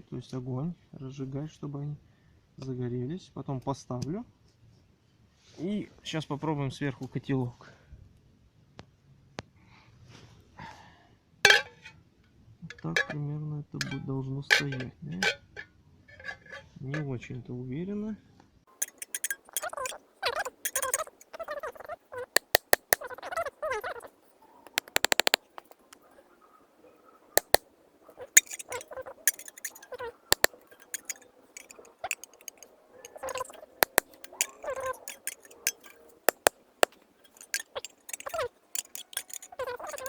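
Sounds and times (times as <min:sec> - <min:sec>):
metal pot knocks: 0:18.8 - 0:21.2, 0:22.4 - 0:23.1, 0:24.7 - 0:26.0, 0:27.4 - 0:27.6, 0:28.4 - 0:40.0
quick ticks: 0:18.8 - 0:21.4, 0:22.4 - 0:23.2, 0:24.7 - 0:26.0, 0:27.4 - 0:27.6, 0:28.4 - 0:40.0
hands handling wood: 0:22.4 - 0:23.1, 0:24.7 - 0:26.1, 0:27.4 - 0:27.6, 0:28.4 - 0:40.0.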